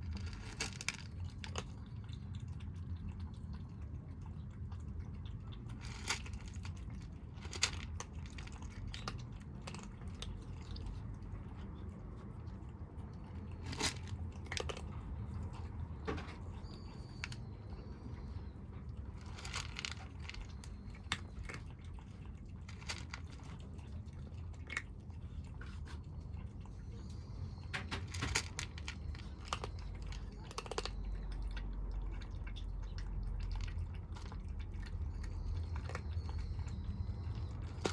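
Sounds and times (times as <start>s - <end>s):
kittens crunching food: 0.0s - 37.9s.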